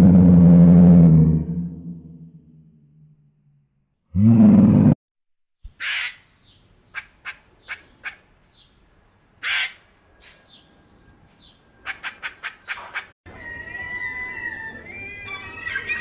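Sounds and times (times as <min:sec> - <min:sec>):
low growl: 0:00.0 - 0:03.2, 0:04.1 - 0:05.0.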